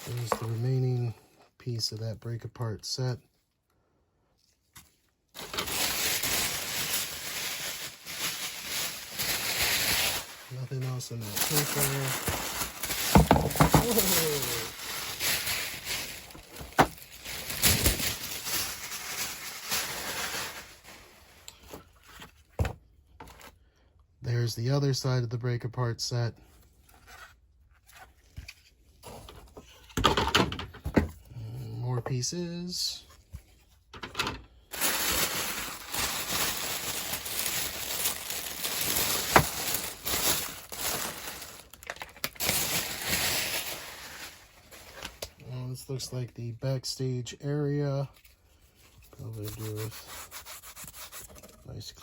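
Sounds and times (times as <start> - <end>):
packing paper rustling: 0.0 - 0.8, 5.3 - 22.5, 34.7 - 45.4.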